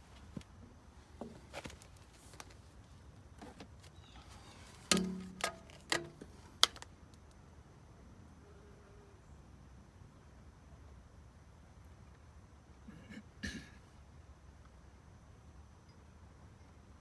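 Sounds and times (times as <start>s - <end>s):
plastic pipe knocking and clattering: 4.9s - 6.8s.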